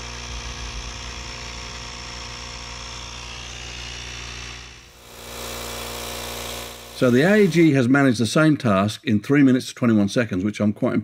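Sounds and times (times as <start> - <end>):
low hum: 0.0 - 7.7
cordless tyre inflator running: 0.0 - 7.8.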